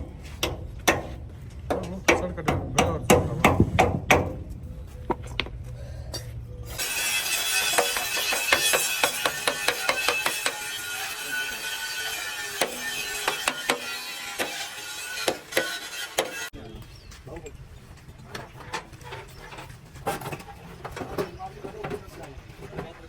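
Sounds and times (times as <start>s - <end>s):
hand tools tapping on metal: 7.7s - 10.7s.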